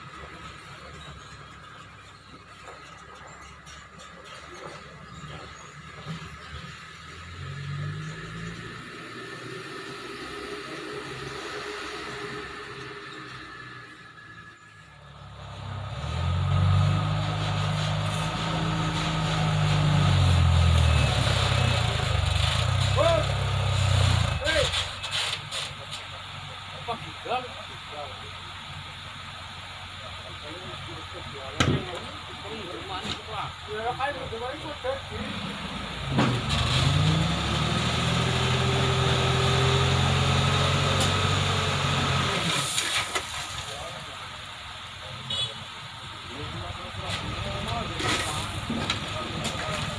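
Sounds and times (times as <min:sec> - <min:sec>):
truck diesel engine running: 0:00.0 - 0:49.9
high whine: 0:09.2 - 0:15.4.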